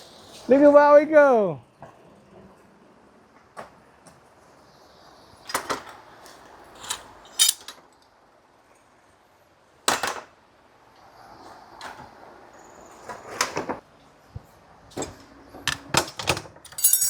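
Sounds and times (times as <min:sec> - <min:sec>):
objects knocking and clattering: 0:15.7 - 0:17.0.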